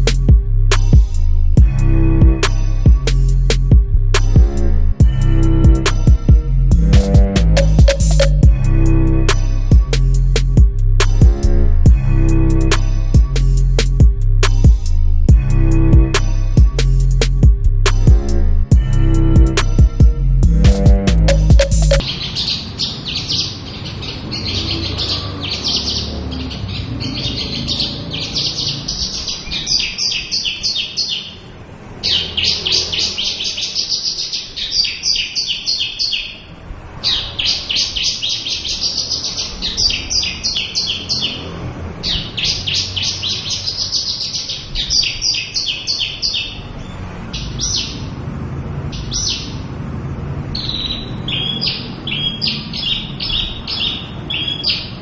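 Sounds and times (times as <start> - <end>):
bird singing high trills: 50.6 - 55.0.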